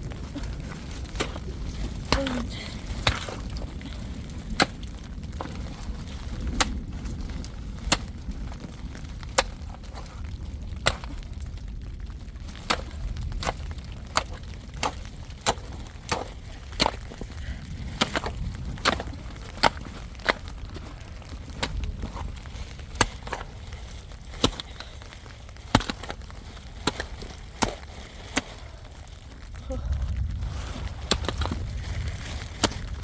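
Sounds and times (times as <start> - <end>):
wood being chopped: 24.4 - 24.9, 25.6 - 26.2.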